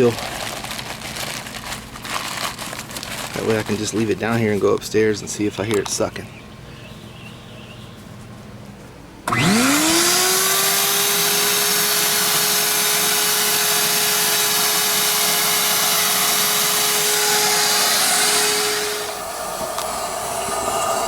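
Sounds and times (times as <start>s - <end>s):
shop vac motor whining: 9.2s - 21.0s.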